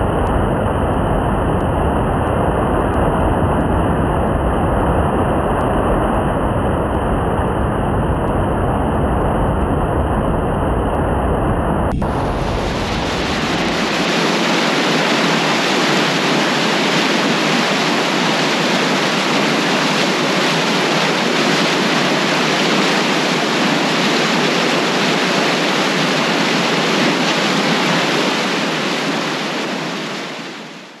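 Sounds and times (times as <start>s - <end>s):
floodwater rushing under a bridge: 11.9s - 31.0s.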